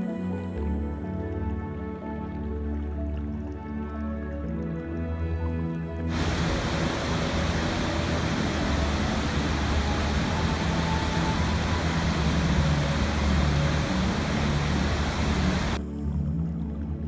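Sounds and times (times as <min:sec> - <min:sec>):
rushing water: 0:06.0 - 0:15.8
soft held music tones: 0:06.1 - 0:16.8.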